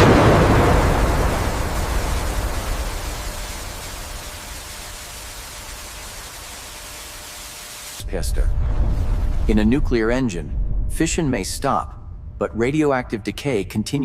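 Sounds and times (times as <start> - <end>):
loud blast: 0.0 - 6.0.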